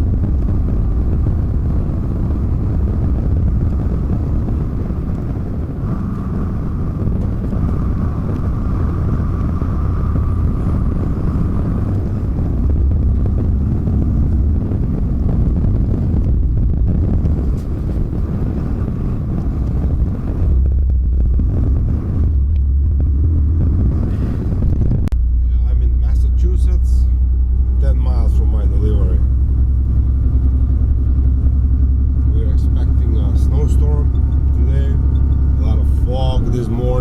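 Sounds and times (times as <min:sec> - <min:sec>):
road and wind hiss: 0:00.0 - 0:37.0
truck engine rumbling: 0:00.0 - 0:37.0
faint steady whine: 0:25.0 - 0:37.0.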